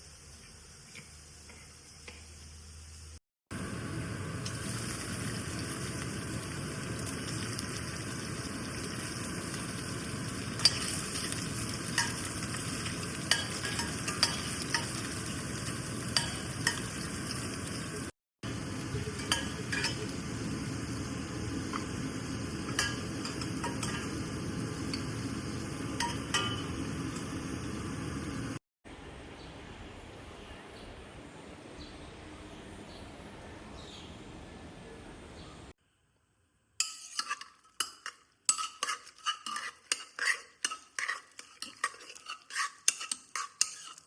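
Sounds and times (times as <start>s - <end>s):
food sizzling in a pan: 0.0s - 28.6s, 36.8s - 44.0s
spoon scraping and knocking pan: 7.0s - 17.6s, 18.9s - 20.4s, 21.6s - 27.6s, 36.8s - 44.0s.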